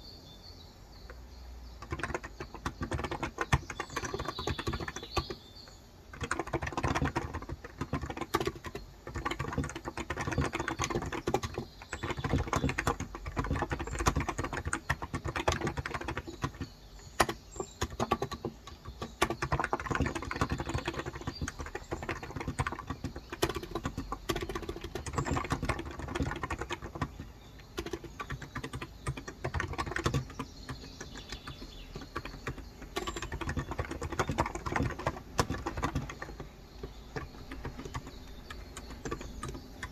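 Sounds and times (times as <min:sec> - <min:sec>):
fast typing on keyboard: 0:01.8 - 0:39.9.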